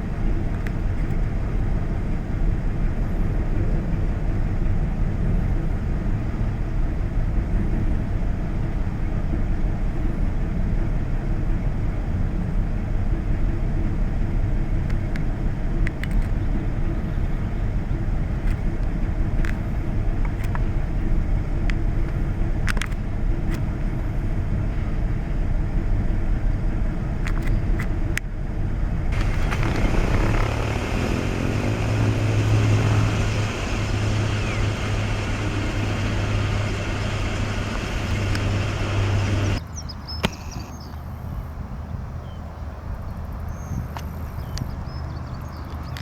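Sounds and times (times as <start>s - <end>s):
low engine rumble: 0.0s - 46.0s
strong low hum: 28.4s - 39.6s.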